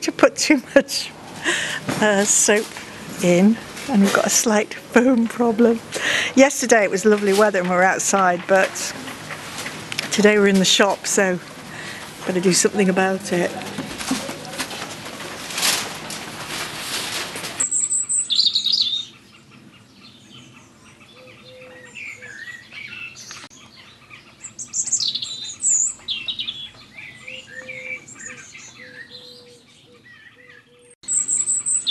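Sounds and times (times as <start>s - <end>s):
songbirds chirping and singing: 17.6s - 31.9s.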